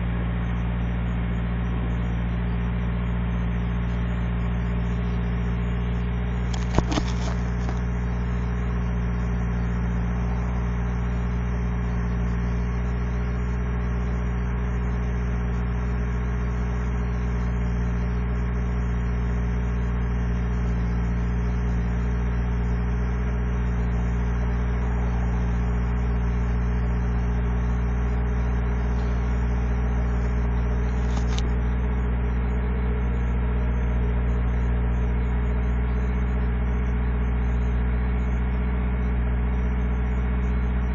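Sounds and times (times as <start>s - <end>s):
truck engine idling: 22.6s - 34.4s
click: 30.9s - 31.6s.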